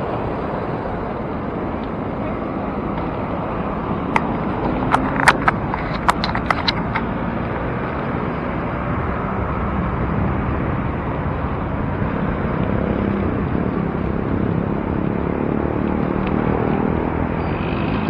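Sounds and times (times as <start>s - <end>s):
wind noise on microphone: 0.0s - 18.0s
sharp clicks: 4.1s - 7.1s.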